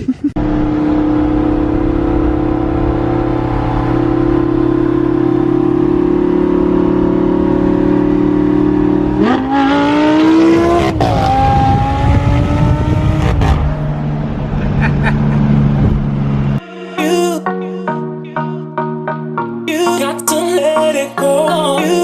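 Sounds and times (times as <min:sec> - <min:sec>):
car engine revving: 0:00.4 - 0:16.6.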